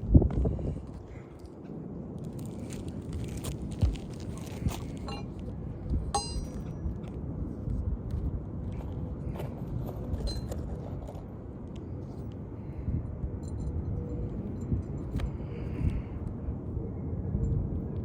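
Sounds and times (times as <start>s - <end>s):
ringing metal clink: 6.1s - 6.7s.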